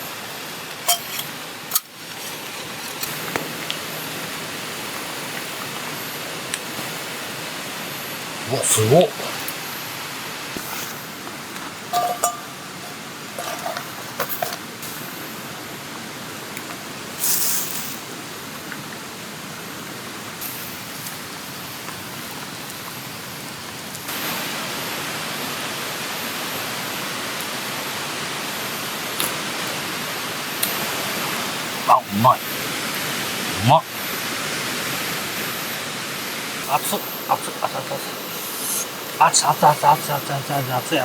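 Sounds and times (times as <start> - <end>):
river rushing: 24.1 - 41.0.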